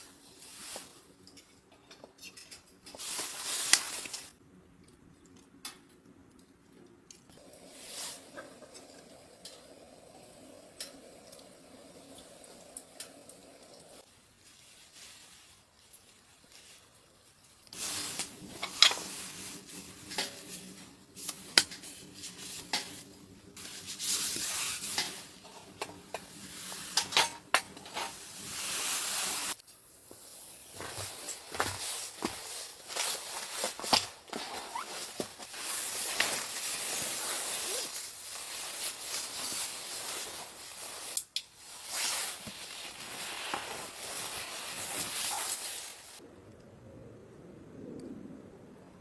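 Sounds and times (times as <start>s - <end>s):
food sizzling: 7.4s - 46.2s
utensil scraping a pan: 17.8s - 28.7s.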